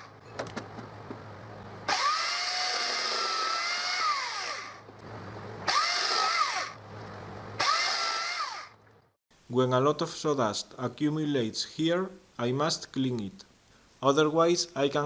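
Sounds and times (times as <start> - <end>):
chainsaw cutting branches: 1.9 - 4.9, 5.6 - 6.8, 7.6 - 8.8.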